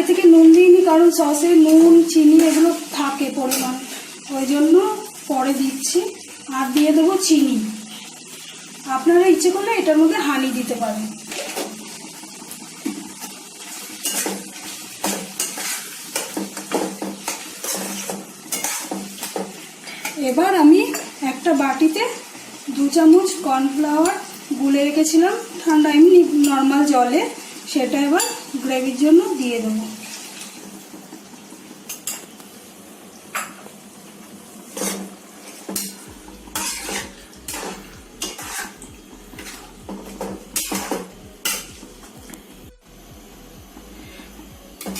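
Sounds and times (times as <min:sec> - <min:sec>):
food sizzling: 0:00.0 - 0:44.9
utensil scraping a pan: 0:01.6 - 0:04.1, 0:13.0 - 0:20.2, 0:34.7 - 0:41.7
steady low hum: 0:36.0 - 0:44.9.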